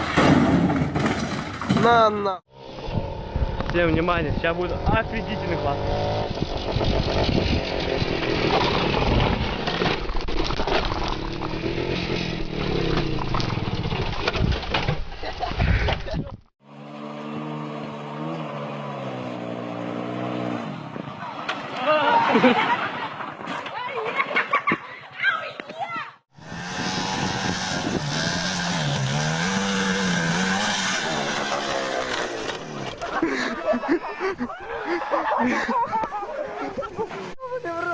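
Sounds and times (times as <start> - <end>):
motorcycle engine revving: 2.4 - 10.1, 11.0 - 14.4, 16.6 - 22.8, 26.3 - 33.6
motorcycle engine running hard: 16.6 - 20.0.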